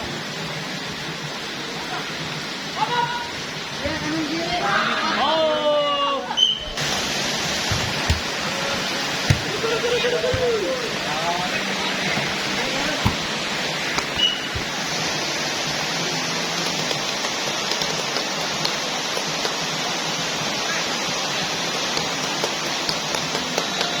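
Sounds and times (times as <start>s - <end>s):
steady rain: 0.0s - 6.0s, 6.8s - 24.0s
faint taps: 7.6s - 8.4s, 9.3s - 10.8s, 12.1s - 13.3s, 14.0s - 14.8s.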